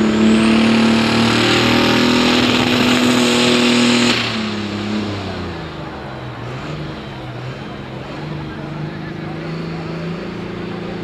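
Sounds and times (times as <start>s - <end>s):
diesel engine at full power: 0.0s - 11.0s.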